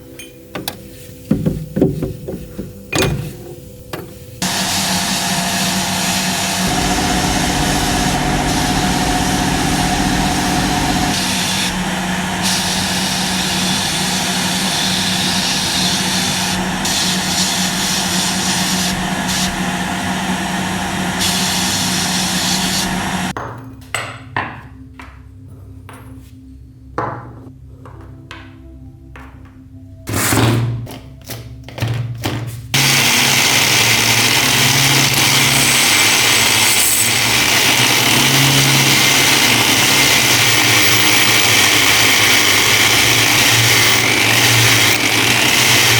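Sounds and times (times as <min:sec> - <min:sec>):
power tool grinding metal: 0:04.4 - 0:23.3, 0:32.8 - 0:45.9.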